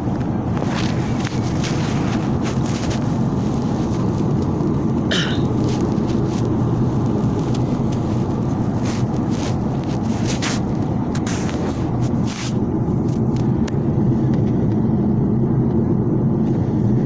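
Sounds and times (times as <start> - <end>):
airliner cabin drone: 0.0 - 17.0.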